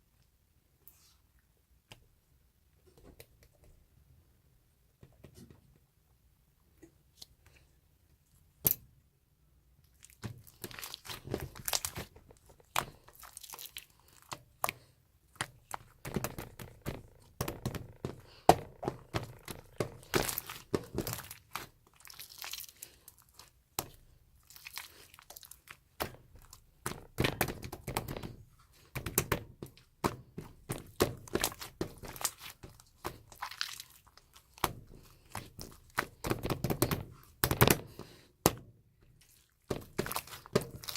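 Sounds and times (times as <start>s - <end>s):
slime crackling and popping: 9.9s - 28.4s, 30.3s - 37.9s, 39.2s - 40.9s.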